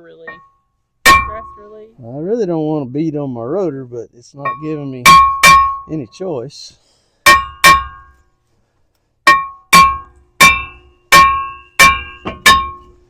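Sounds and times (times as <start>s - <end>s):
hammer striking ringing metal: 1.1s - 1.8s, 4.4s - 6.1s, 7.2s - 8.2s, 9.3s - 13.0s.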